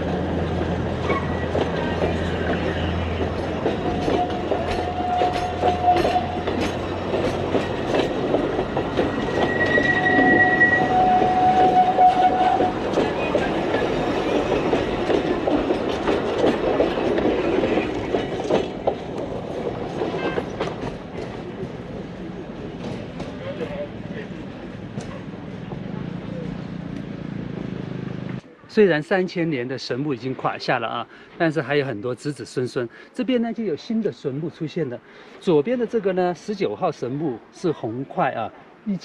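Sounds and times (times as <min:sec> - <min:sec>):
train wheels clacking on rails: 0:00.0 - 0:21.9.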